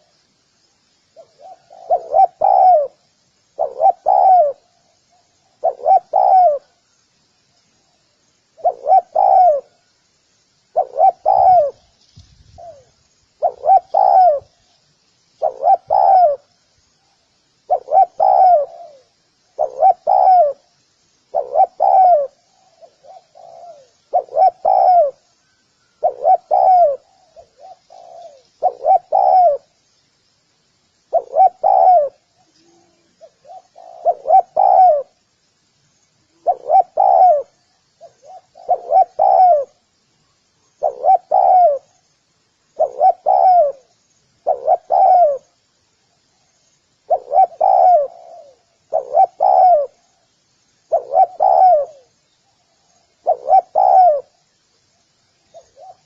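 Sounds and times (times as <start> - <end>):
dove cooing: 1.2 - 3.0, 3.6 - 6.8, 8.6 - 9.9, 10.7 - 11.9, 12.5 - 14.6, 15.4 - 16.5, 17.7 - 20.7, 21.3 - 25.3, 25.9 - 29.7, 31.1 - 35.2, 36.3 - 39.8, 40.8 - 42.0, 42.8 - 45.6, 47.0 - 50.2, 50.9 - 54.4, 55.5 - 56.0.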